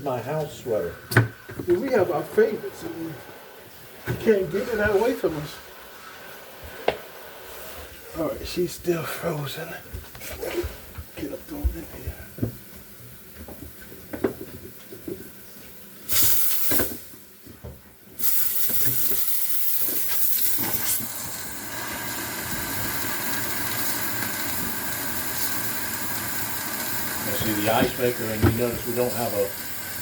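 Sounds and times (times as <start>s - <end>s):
defrosting tool hissing: 16.0s - 17.2s, 18.2s - 30.0s.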